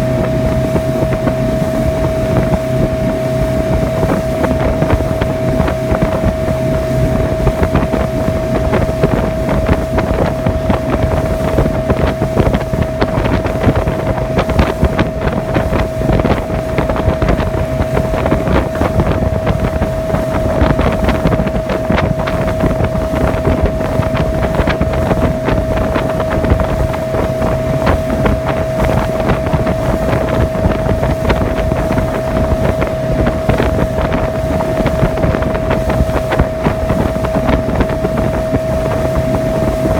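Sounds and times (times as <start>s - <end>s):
motorboat motor whining: 0.0s - 39.9s
water rushing: 0.0s - 39.9s
wind buffeting microphone: 0.0s - 39.9s.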